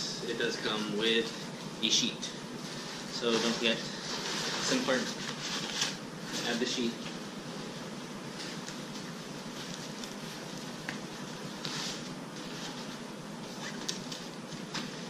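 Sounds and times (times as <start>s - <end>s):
room hiss: 0.0s - 15.0s
fabric rustling: 2.6s - 6.7s.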